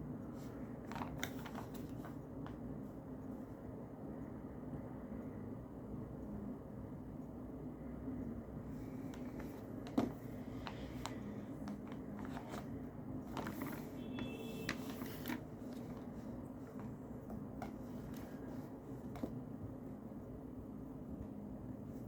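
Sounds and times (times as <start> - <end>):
low background noise: 0.0 - 22.0
paper rustling: 0.4 - 2.2, 9.1 - 17.0.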